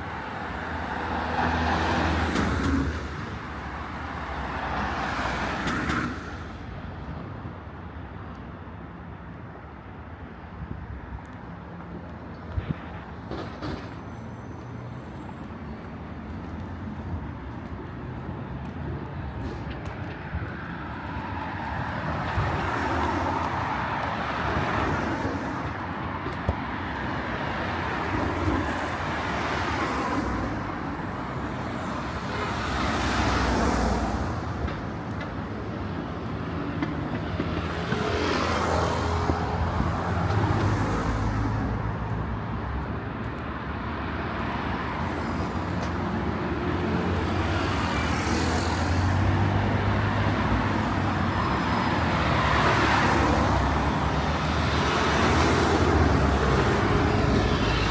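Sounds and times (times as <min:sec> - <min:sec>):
cars passing: 0:00.0 - 0:57.9
low traffic rumble: 0:00.0 - 0:57.9.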